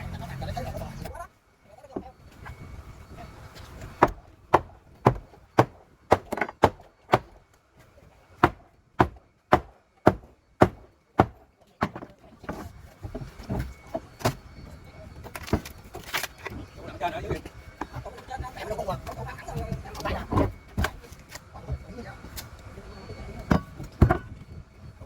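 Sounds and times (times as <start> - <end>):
tool striking wood: 4.0 - 7.4, 8.4 - 13.6.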